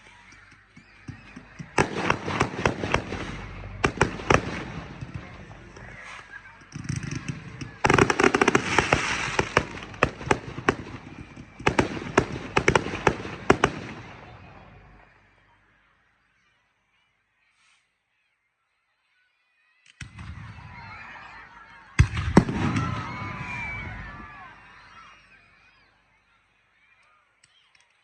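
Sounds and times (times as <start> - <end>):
fireworks crackling: 0.0 - 15.0
fireworks bangs: 0.4 - 15.1, 21.9 - 25.0.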